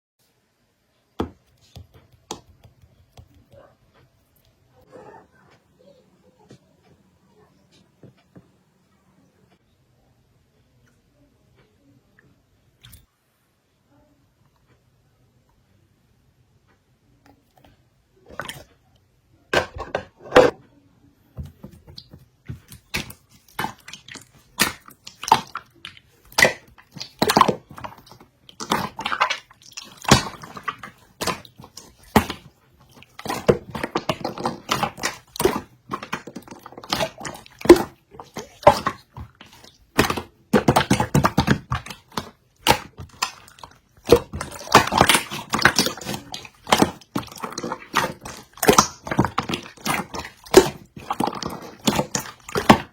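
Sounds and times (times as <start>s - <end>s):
slime clicking and crackling: 22.0s - 52.9s.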